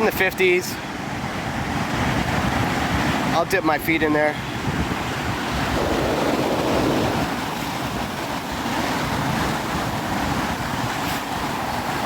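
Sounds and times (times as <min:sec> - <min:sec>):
wind buffeting microphone: 0:01.0 - 0:12.0
ocean surf washing in: 0:04.6 - 0:12.0.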